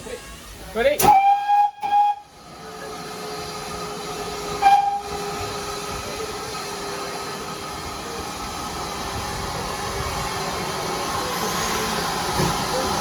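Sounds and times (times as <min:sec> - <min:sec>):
train hiss and rumble: 0:00.0 - 0:13.0
steam locomotive whistle: 0:01.0 - 0:02.4, 0:04.5 - 0:05.4.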